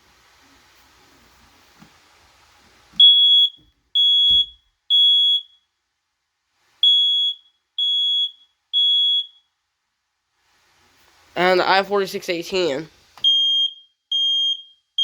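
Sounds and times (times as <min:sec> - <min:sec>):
smoke alarm beeping: 0:03.0 - 0:05.7, 0:06.8 - 0:09.6, 0:13.2 - 0:15.0.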